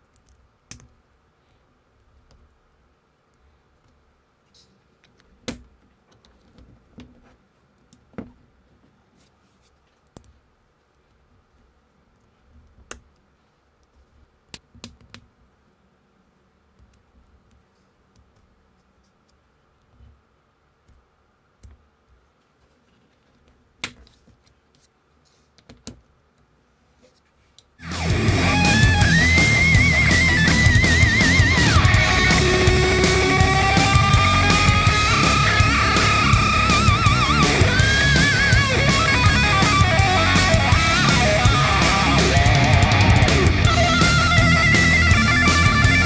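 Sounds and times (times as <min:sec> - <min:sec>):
soft handling rustle: 0:03.2 - 0:14.4, 0:21.8 - 0:27.8.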